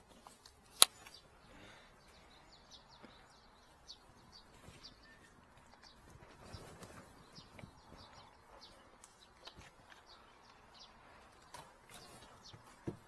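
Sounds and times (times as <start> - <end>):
faint high bird chirps: 0.9 - 13.0.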